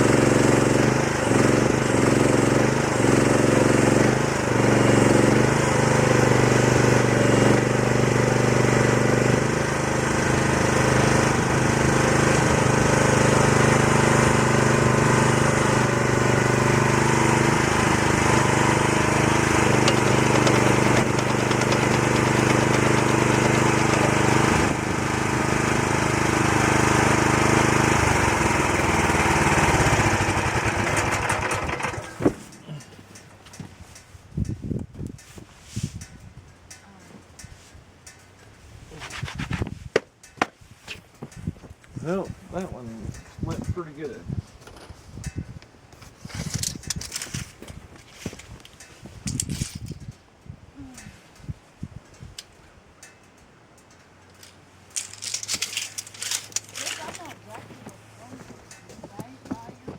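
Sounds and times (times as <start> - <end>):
excavator engine running: 0.0 - 33.8, 54.1 - 59.9.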